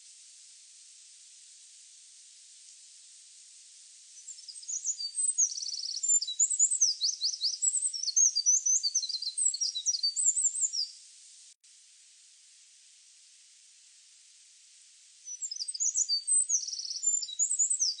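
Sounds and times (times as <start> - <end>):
steady high hiss: 0.0 - 18.0
songbird singing: 4.2 - 11.0, 15.2 - 18.0.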